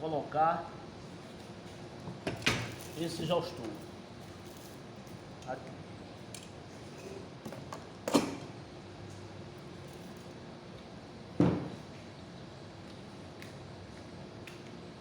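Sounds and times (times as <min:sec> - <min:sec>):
objects set down with thuds: 0:11.4 - 0:11.8.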